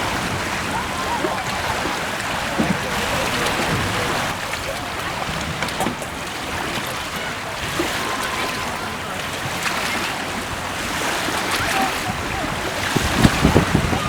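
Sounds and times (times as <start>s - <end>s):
small waves splashing: 0.0s - 14.0s
wind rushing: 12.1s - 14.0s.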